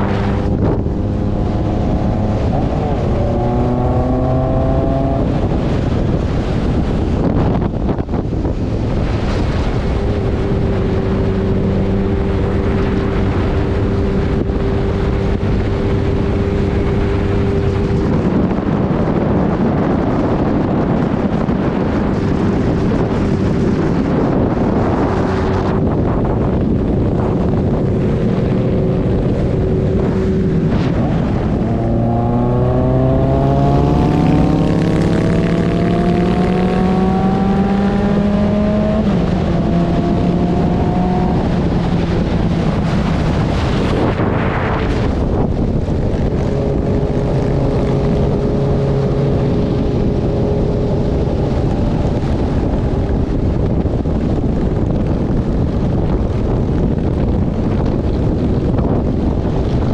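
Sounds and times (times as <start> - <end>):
engine speeding up: 0.0 - 59.9
wind noise: 0.0 - 59.9.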